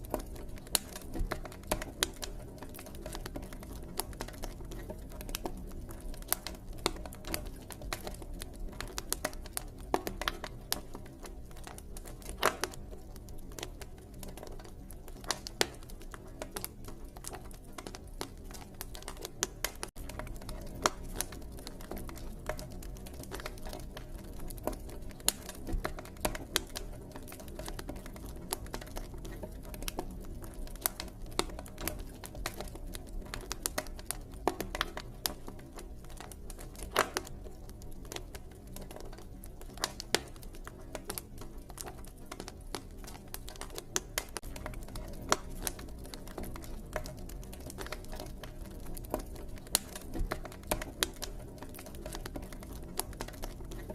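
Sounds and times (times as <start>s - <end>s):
campfire crackling: 0.0s - 53.9s.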